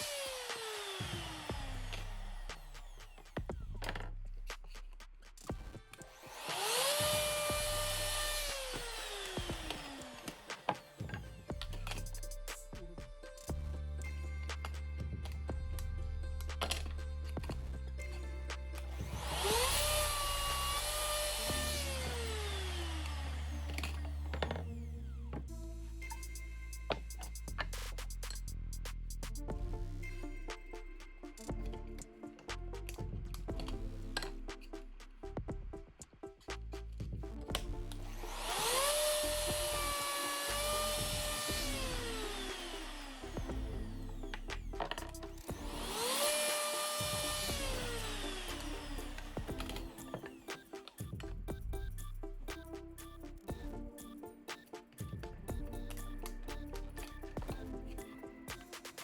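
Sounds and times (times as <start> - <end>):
electric router motor whine: 0.0 - 3.0, 6.3 - 11.2, 19.2 - 24.7, 38.1 - 50.7
background music: 0.0 - 59.0.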